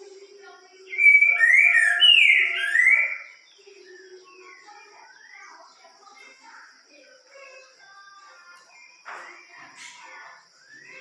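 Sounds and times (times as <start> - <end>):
faint bird chirps: 0.0 - 11.0
bird whistling song: 0.8 - 5.5, 9.8 - 11.0.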